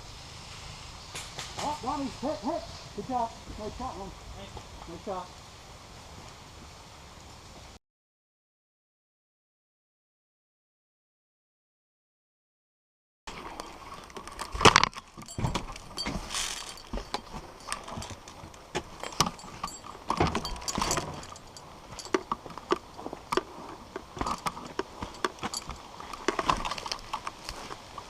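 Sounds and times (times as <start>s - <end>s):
rattling gear: 13.9s - 28.0s
footsteps: 14.4s - 28.0s.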